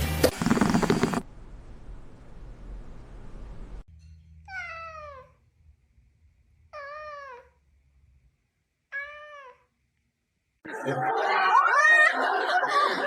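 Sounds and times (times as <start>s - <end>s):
cat meowing: 4.5s - 5.4s, 6.7s - 7.6s, 8.9s - 9.7s.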